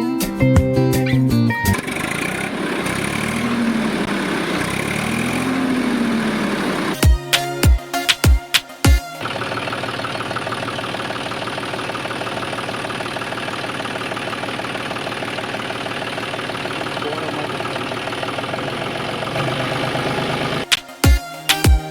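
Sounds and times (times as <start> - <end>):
small tractor engine idling: 1.7 - 7.0, 9.2 - 20.7.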